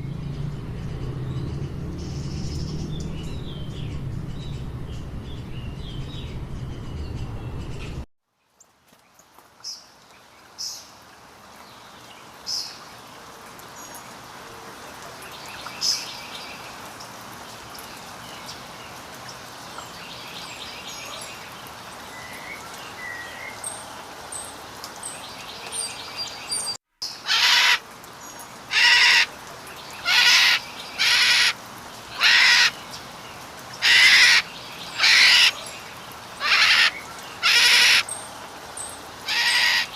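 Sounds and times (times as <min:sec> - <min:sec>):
birds chirping and trilling: 0:00.0 - 0:08.0, 0:19.8 - 0:39.9
loud harsh bird calls: 0:27.2 - 0:27.8, 0:28.7 - 0:29.3, 0:30.0 - 0:32.8, 0:33.8 - 0:35.7, 0:36.4 - 0:38.2, 0:39.2 - 0:39.9.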